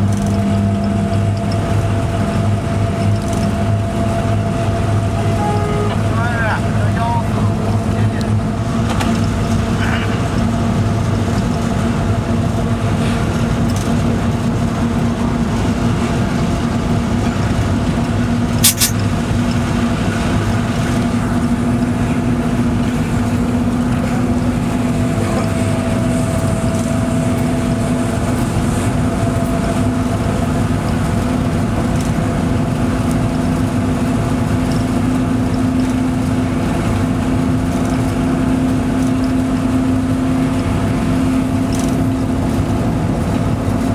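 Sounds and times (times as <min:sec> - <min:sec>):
locomotive cab drone: 0:00.0 - 0:43.9
sharp click: 0:18.6 - 0:19.0.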